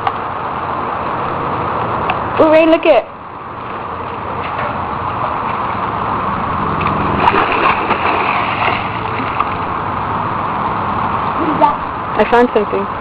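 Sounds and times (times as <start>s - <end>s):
sharp splashes: 6.7s - 9.8s
water splashing in pool: 6.7s - 9.9s.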